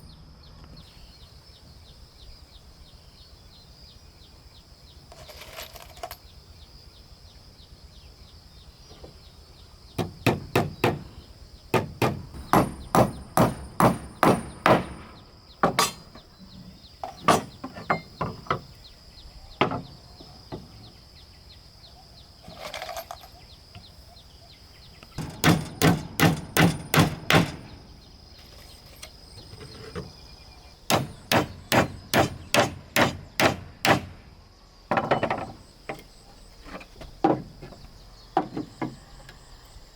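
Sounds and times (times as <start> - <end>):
hammer striking wood: 10.0 - 11.1, 11.7 - 16.2, 19.6 - 19.9, 25.2 - 27.9, 30.9 - 34.2.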